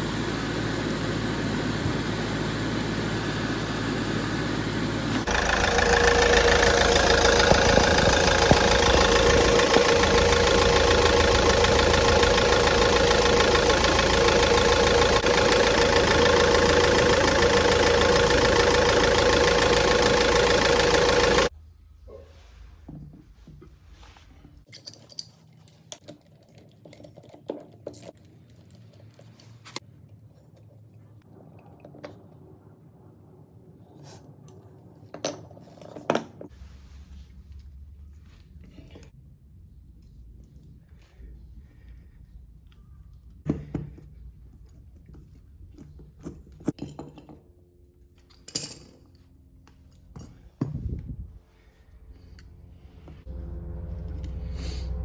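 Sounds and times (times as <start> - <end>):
low hum: 0.0 - 22.2, 47.5 - 55.0
metal tools clinking: 24.7 - 26.0.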